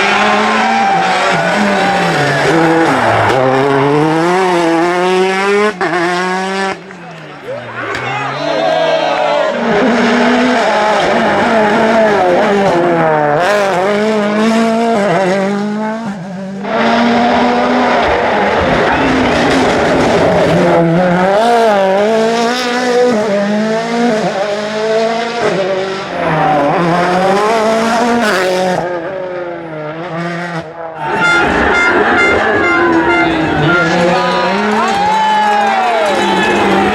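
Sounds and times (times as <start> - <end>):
rally car engines revving: 0.0 - 36.9.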